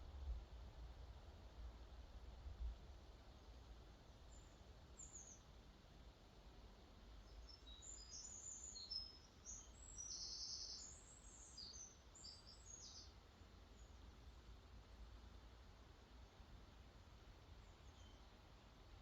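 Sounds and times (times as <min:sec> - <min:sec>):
low steady rumble: 0:00.0 - 0:07.3
faint songbirds singing: 0:03.4 - 0:19.0.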